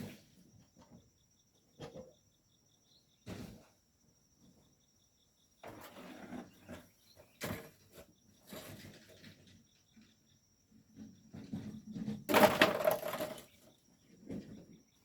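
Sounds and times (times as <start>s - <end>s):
insects chirping: 0.0s - 15.0s
scraping and crunching: 12.3s - 13.6s.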